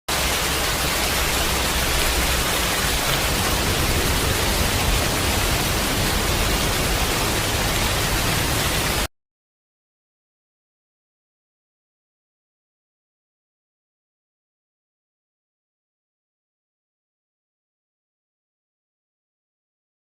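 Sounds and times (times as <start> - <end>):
heavy rain falling: 0.1 - 9.1.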